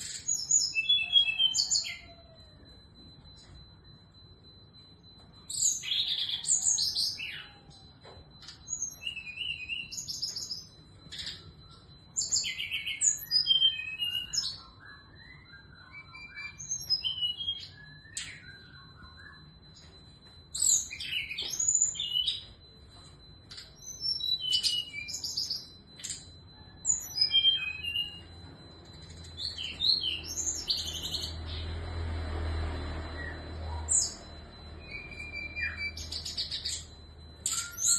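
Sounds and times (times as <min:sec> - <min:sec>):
faint high whine: 0:00.0 - 0:37.9
bird singing whistled notes: 0:12.2 - 0:19.5, 0:26.9 - 0:28.2, 0:33.1 - 0:37.9.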